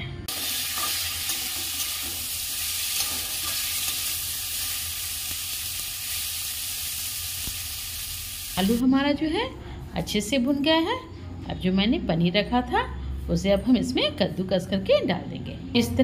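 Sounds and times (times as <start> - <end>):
potatoes sizzling in hot oil: 0.3 - 8.8.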